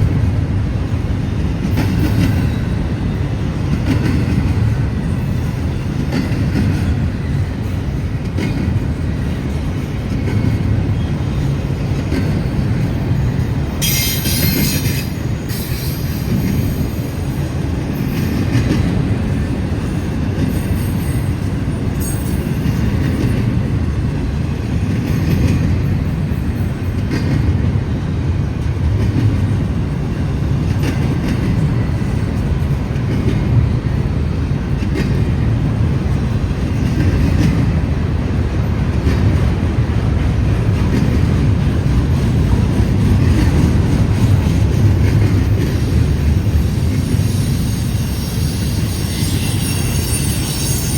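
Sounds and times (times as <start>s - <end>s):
freight train cars rumbling past: 0.0s - 50.9s
high-pitched wheel squeal: 13.8s - 16.8s, 46.4s - 50.9s.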